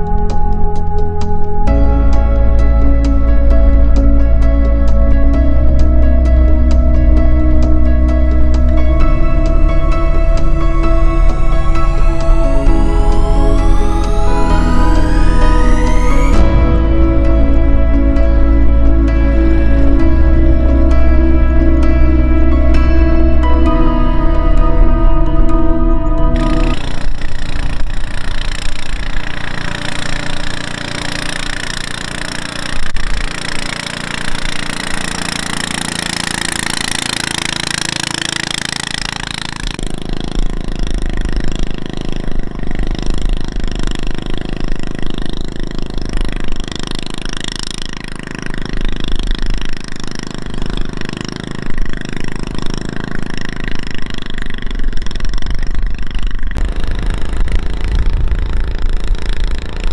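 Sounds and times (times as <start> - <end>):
diesel engine knocking: 26.8 - 59.9.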